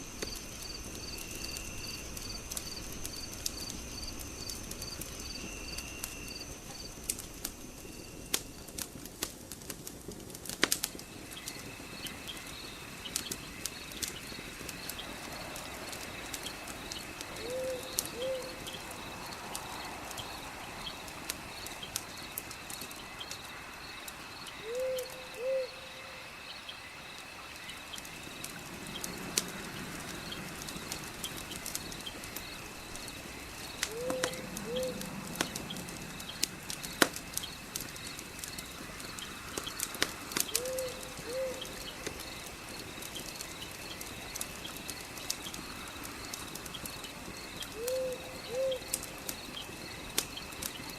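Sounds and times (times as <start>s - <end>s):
insects chirping: 0.0s - 9.1s, 10.9s - 50.9s
fire crackling and popping: 0.0s - 25.4s, 26.5s - 50.9s
bird hooting: 17.4s - 18.6s, 24.6s - 25.9s, 33.9s - 35.0s, 40.6s - 41.6s, 47.8s - 48.8s.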